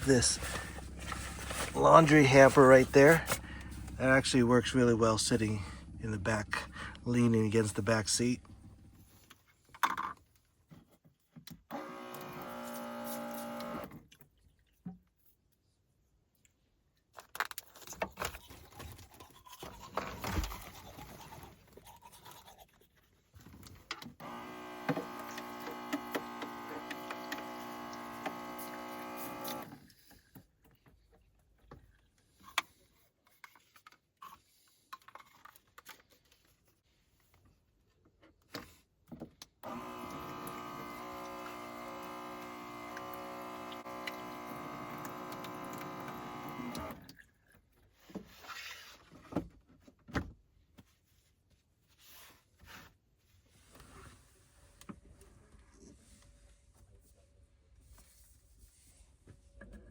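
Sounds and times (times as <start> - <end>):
electric toothbrush buzzing: 11.7 - 13.9, 24.2 - 29.7, 39.6 - 47.0.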